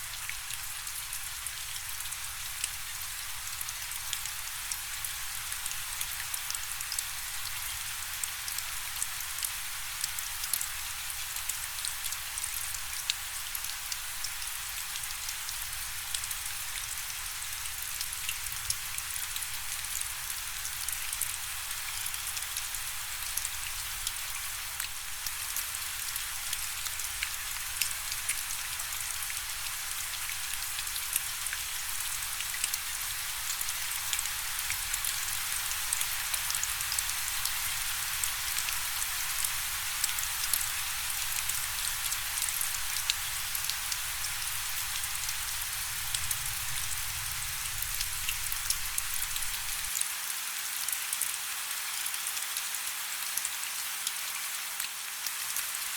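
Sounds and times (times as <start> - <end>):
raindrops ticking on a surface: 0.0 - 55.9
rain hissing: 25.2 - 49.9.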